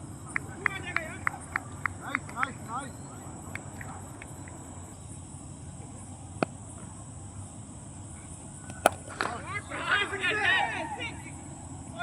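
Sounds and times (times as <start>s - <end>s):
insects trilling: 0.0s - 12.0s
low outdoor background noise: 0.0s - 12.0s
sharp crack: 8.8s - 9.4s.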